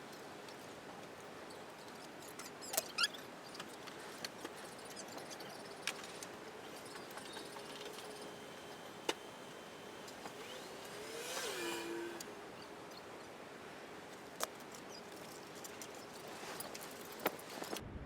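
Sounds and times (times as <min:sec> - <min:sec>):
faint steady hum: 0:00.0 - 0:18.0
motor whine: 0:05.5 - 0:13.0.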